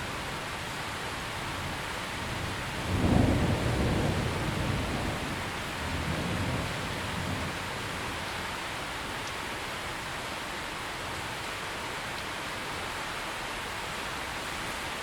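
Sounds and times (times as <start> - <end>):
steady rain falling: 0.0 - 15.0
thunder rumbling: 1.5 - 8.3.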